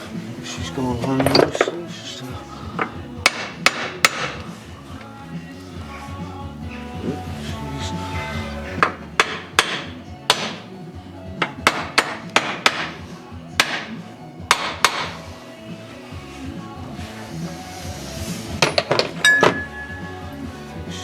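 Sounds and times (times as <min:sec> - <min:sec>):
hammer tapping on metal: 0:03.3 - 0:04.5, 0:11.4 - 0:13.0, 0:14.5 - 0:15.2.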